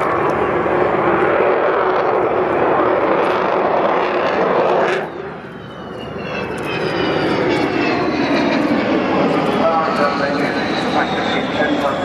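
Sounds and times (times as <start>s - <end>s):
high whine falling in pitch: 0.0s - 12.0s
jet bomber engines roaring: 0.0s - 12.0s.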